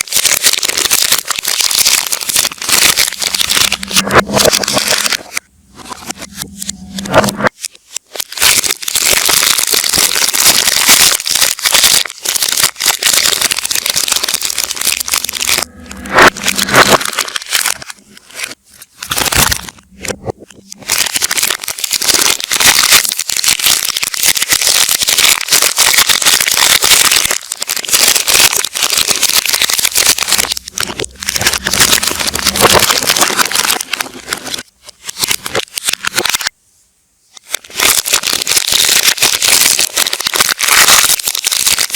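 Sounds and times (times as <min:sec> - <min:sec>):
wrappers crinkling played backwards: 0:00.0 - 0:36.6, 0:37.3 - 0:41.9.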